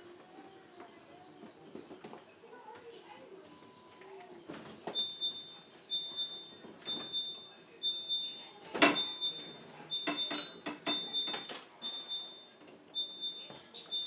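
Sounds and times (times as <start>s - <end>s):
refrigerator door alarm beeping: 3.7s - 14.0s
things clattering in fridge: 10.0s - 11.7s.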